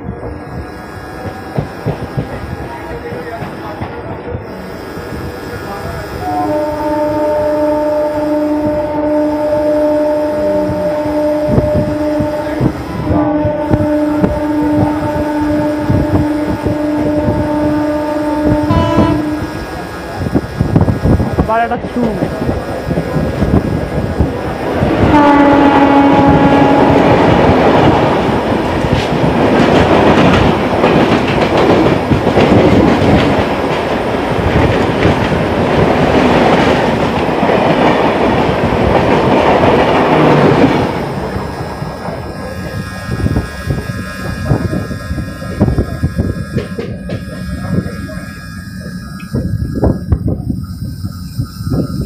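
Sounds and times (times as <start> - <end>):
passing train wheel and air noise: 0.0 - 52.0
wheels clicking over rail joints: 1.2 - 4.1
train horn: 6.2 - 19.9, 25.0 - 27.8, 39.7 - 52.0.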